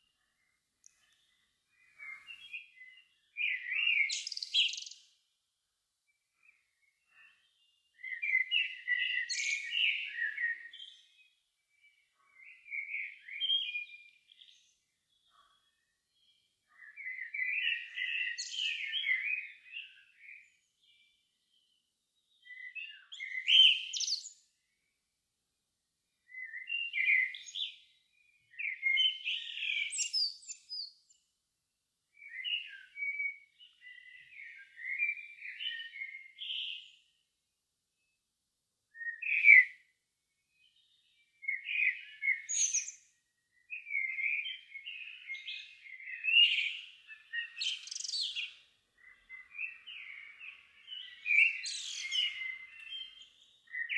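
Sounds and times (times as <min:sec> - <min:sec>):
songbird warbling: 0:44.9 - 0:53.9.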